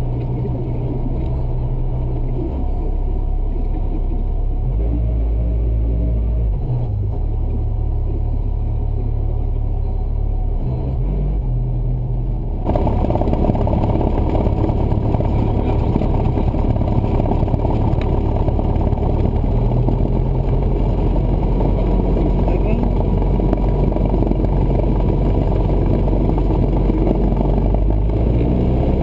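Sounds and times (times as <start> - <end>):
light aircraft engine and propeller: 12.7 - 29.0.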